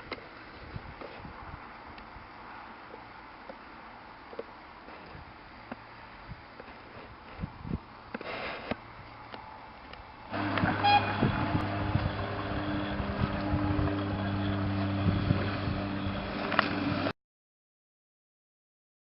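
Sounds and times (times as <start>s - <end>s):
locomotive droning: 8.0s - 17.1s
low hum: 8.9s - 17.1s
brief higher tones: 10.3s - 15.2s.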